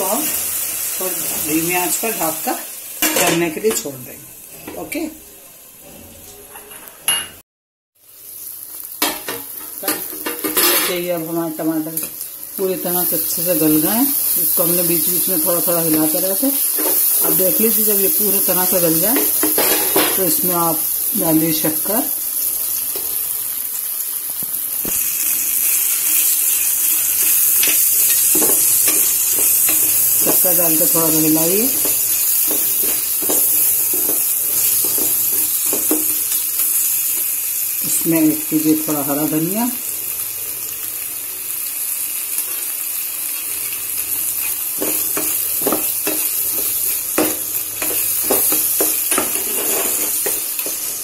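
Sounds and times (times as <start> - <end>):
chutney sizzling in hot oil: 0.0 - 5.8, 8.0 - 51.0
wooden spatula scraping and stirring: 44.8 - 51.0.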